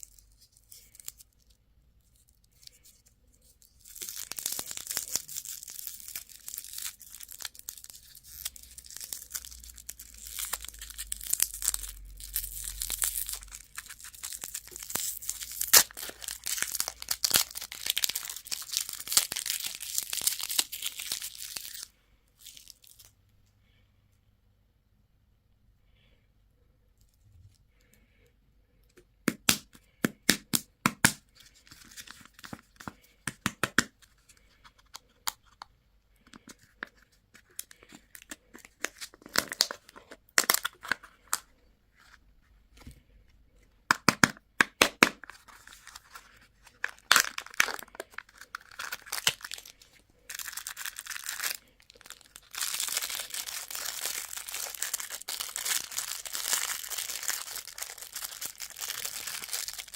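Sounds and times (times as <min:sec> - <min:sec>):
plastic wrappers crinkling: 0:00.0 - 0:23.1, 0:36.2 - 0:41.5, 0:44.9 - 0:59.9.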